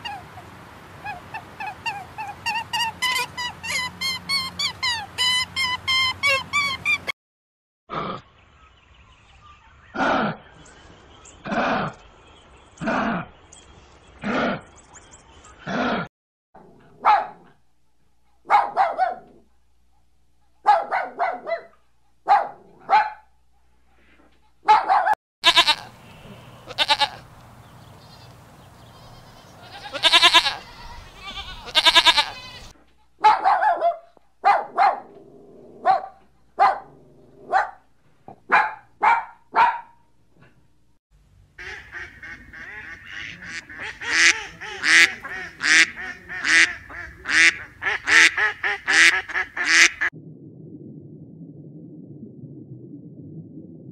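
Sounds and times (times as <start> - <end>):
puppies whimpering and yelping: 1.1 - 7.1
geese calling: 25.4 - 27.3, 41.6 - 50.1.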